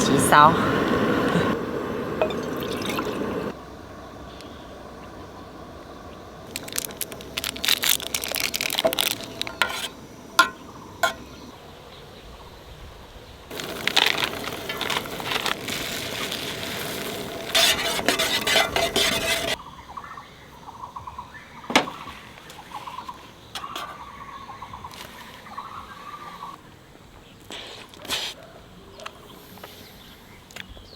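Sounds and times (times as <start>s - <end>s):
cookware clinking and clattering: 10.4s - 11.3s
dense rustling: 13.5s - 19.6s.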